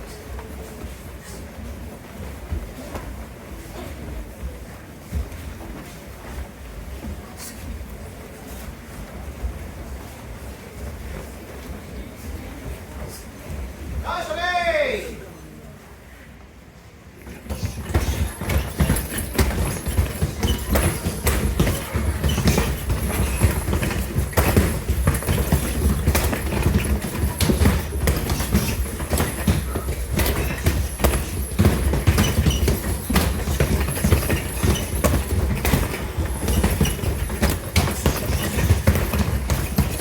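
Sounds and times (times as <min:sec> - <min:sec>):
bare feet stamping on floor: 0:17.4 - 0:40.0.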